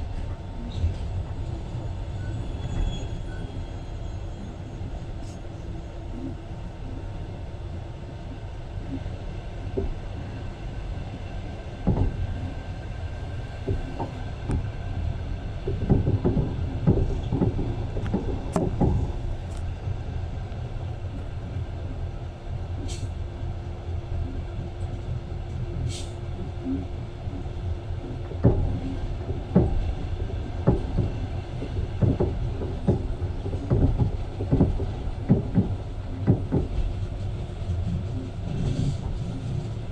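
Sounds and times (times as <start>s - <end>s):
train rumbling on rails: 0.0s - 39.9s
brief high squeaks: 2.2s - 4.5s.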